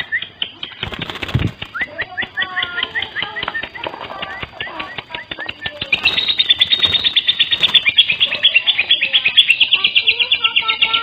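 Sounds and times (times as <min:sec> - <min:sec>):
lovebird high chirps: 0:00.0 - 0:00.9, 0:01.6 - 0:11.0
lower whistled bird notes: 0:00.0 - 0:11.0.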